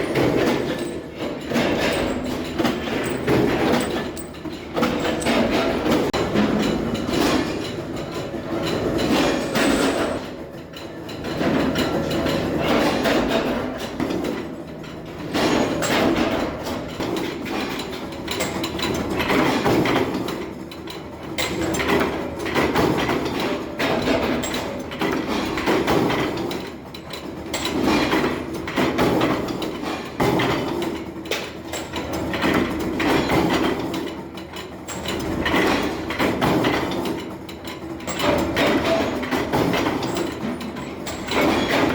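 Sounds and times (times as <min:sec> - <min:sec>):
metalworking machinery clattering: 0:00.0 - 0:41.9.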